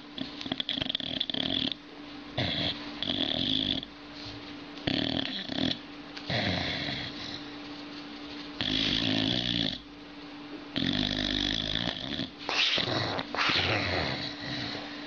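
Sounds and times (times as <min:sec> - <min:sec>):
dog snoring: 0:00.0 - 0:01.8, 0:02.4 - 0:03.9, 0:04.8 - 0:07.5, 0:08.6 - 0:09.9, 0:10.7 - 0:15.0.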